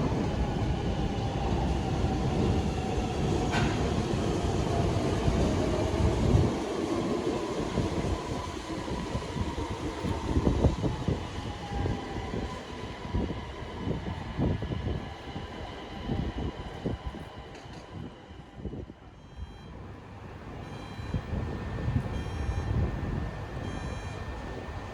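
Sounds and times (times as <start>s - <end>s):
low train running rumble: 0.0s - 24.9s.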